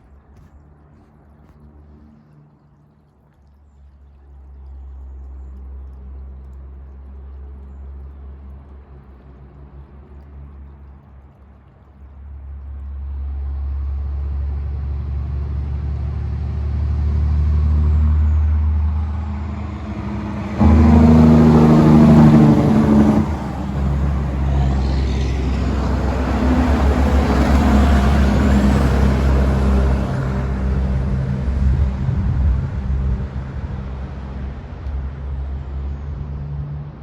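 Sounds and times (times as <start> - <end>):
diesel truck engine: 12.9 - 37.0.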